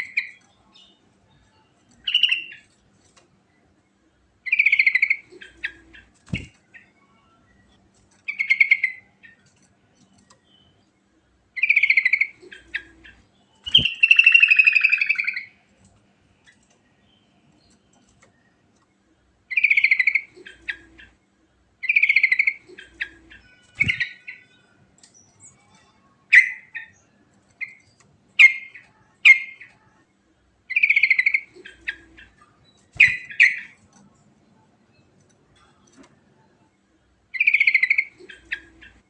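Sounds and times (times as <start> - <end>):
bird singing trilled phrases: 2.0 - 2.7, 4.4 - 7.0, 7.6 - 9.5, 11.6 - 15.6, 19.5 - 21.2, 21.8 - 29.9, 30.7 - 33.8, 37.3 - 39.0
sharp bird chirps: 11.6 - 15.6, 21.8 - 24.4, 30.7 - 33.8.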